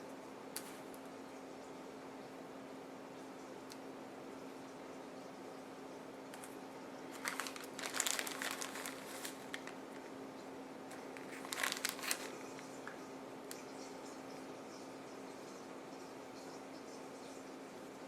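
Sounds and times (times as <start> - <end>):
faint hum: 0.0 - 18.0
bag crinkling and rustling: 7.1 - 10.1, 10.9 - 12.7.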